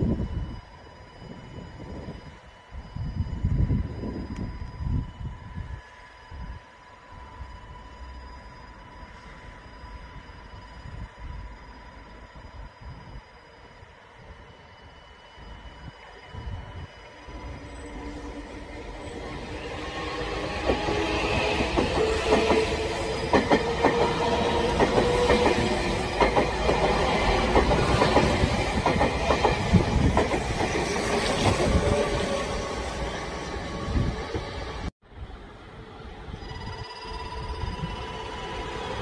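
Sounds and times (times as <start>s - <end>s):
low rumble of train on rails: 0.0s - 39.0s
train wheels clacking over rail joints: 20.4s - 31.6s.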